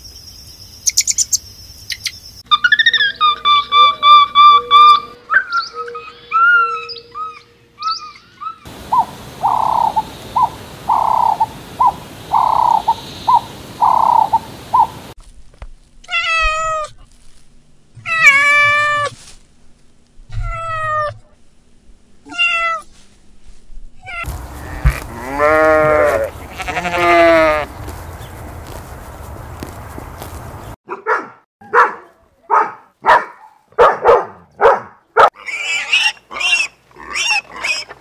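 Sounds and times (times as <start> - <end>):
steady hiss: 8.7 - 15.2
cat meowing: 24.0 - 27.6.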